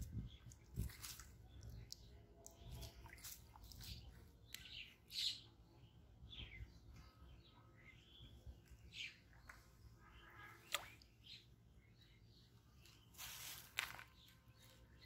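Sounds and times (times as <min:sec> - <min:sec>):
birds chirping: 0:00.0 - 0:15.0
water splashing: 0:10.6 - 0:11.2
rustling: 0:13.1 - 0:14.4.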